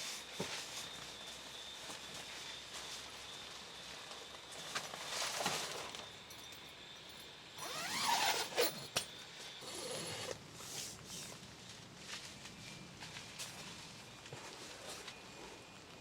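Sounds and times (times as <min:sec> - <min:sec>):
gear rubbing and sliding: 0:07.6 - 0:11.4.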